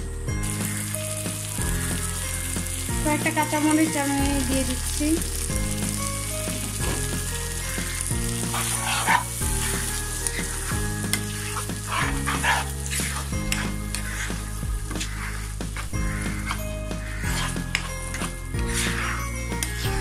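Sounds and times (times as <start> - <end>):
background music: 0.0 - 20.0
food sizzling in oil: 0.4 - 20.0
wooden spatula scraping a pan: 5.8 - 19.2.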